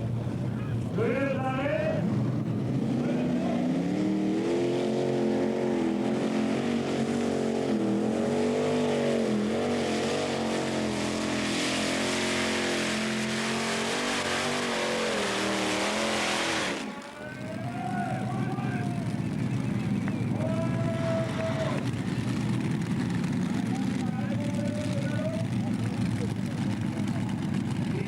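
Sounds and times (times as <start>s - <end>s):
tractor engine revving: 0.0s - 28.0s.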